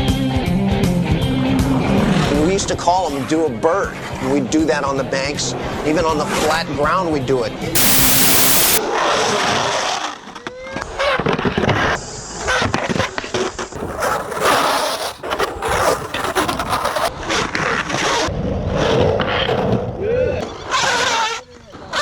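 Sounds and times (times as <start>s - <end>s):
skateboard wheels sliding on concrete: 13.8s - 17.1s.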